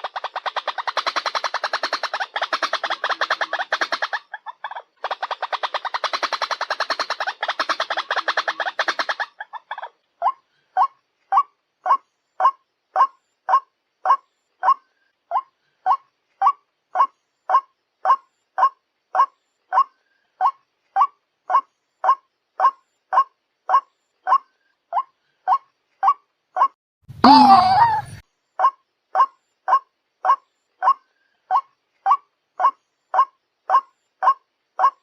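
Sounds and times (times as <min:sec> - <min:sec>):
bird calling short notes: 0:27.1 - 0:28.2.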